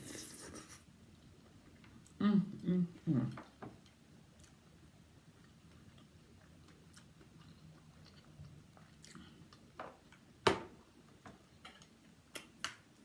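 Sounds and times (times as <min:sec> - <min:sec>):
person chewing food: 0:03.4 - 0:13.0.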